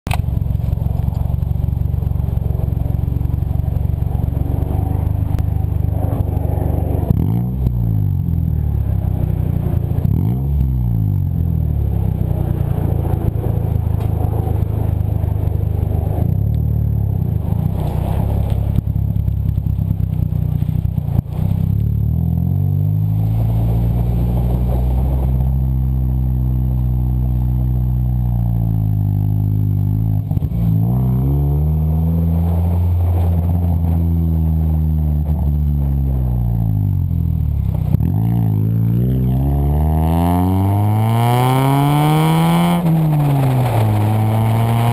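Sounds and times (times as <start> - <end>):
loud car engine idling: 0.1 - 22.2
engine revving: 0.1 - 44.9.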